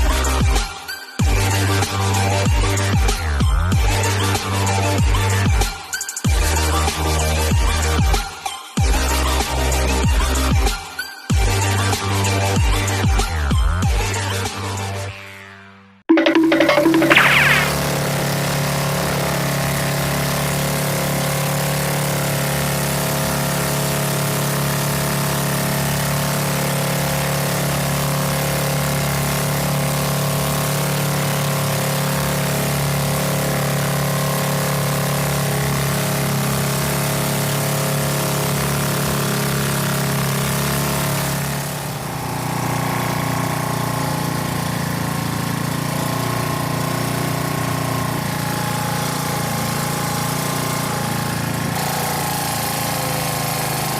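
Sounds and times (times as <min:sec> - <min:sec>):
motorboat engine running: 0:17.8 - 0:53.9.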